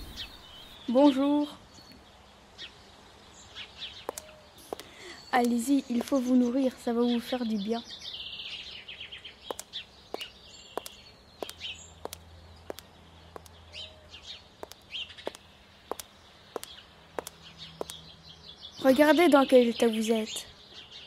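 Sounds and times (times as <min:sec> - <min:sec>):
birds chirping faintly: 0:00.0 - 0:21.0
repeating sharp click: 0:09.5 - 0:13.5.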